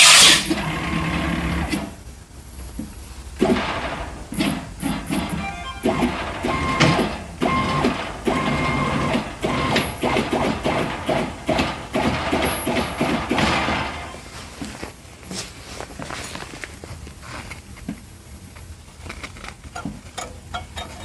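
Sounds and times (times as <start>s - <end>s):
stepper motors whining: 0.0s - 2.0s, 3.4s - 14.3s.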